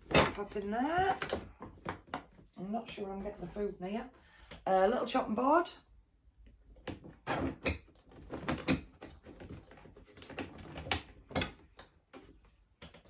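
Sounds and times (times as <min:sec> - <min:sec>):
household items knocking and rustling: 0:00.0 - 0:03.6, 0:06.7 - 0:13.0.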